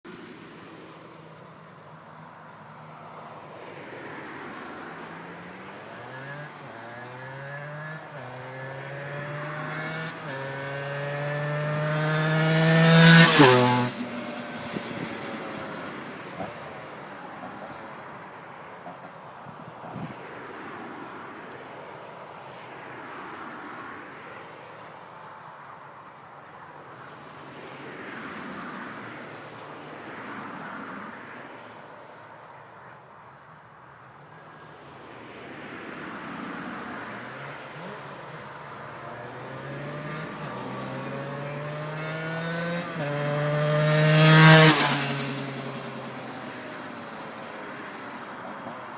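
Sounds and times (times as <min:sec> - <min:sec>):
motorcycle accelerating past: 0:04.0 - 0:16.8, 0:36.6 - 0:48.9.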